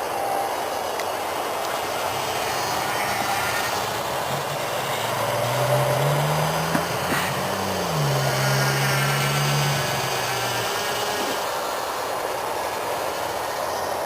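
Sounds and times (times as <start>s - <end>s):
model airplane motor buzzing: 0.0s - 14.0s
outdoor noise rushing: 0.0s - 14.0s.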